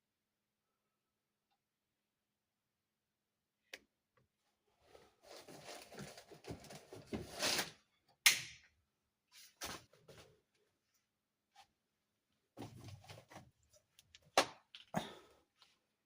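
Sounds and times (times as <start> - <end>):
rustling and scraping: 4.8 - 7.8.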